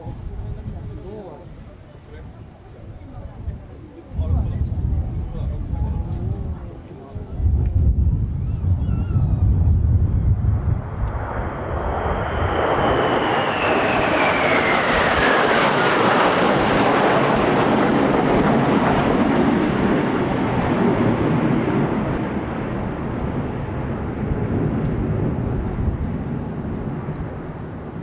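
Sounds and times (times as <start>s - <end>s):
wind buffeting microphone: 0.0s - 28.0s
jet whine falling in pitch: 8.4s - 18.4s
jet roaring past: 8.5s - 28.0s.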